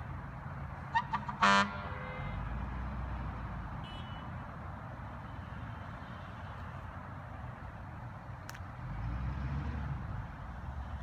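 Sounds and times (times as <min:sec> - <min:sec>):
emergency vehicle horn: 0:01.2 - 0:02.5.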